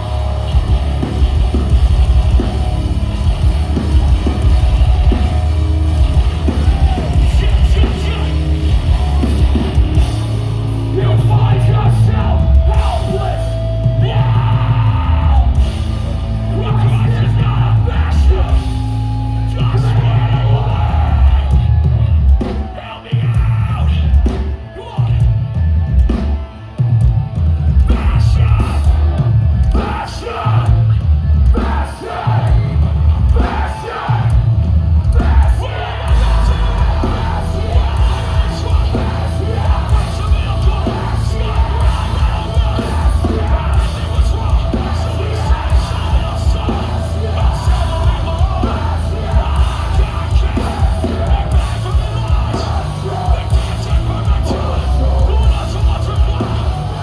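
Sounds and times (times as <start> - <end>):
distorted guitars: 0.0 - 57.0
pounding drums: 0.0 - 57.0
screamed vocals: 10.9 - 24.2, 27.8 - 57.0.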